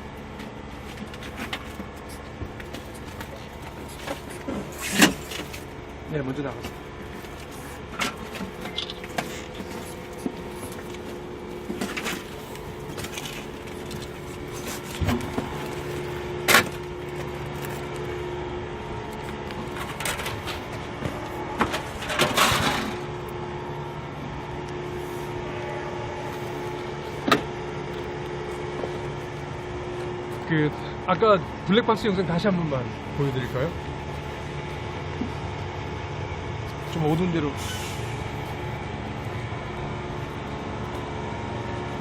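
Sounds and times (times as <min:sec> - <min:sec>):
mechanical hum: 0:00.0 - 0:42.0
scraping rustle: 0:06.6 - 0:18.0.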